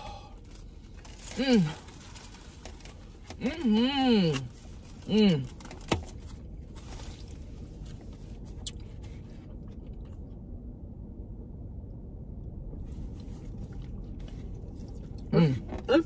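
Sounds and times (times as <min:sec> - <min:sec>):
car cabin low hum: 0:00.0 - 0:16.0
chewing and eating: 0:04.3 - 0:10.4, 0:13.0 - 0:15.8.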